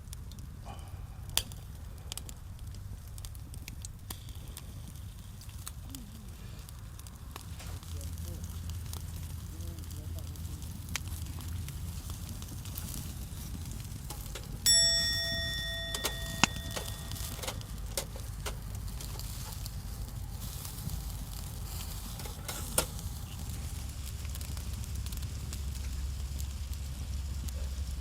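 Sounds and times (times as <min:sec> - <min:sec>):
skewers sizzling over campfire: 0:00.0 - 0:28.0
metal object struck ringing: 0:14.7 - 0:17.9.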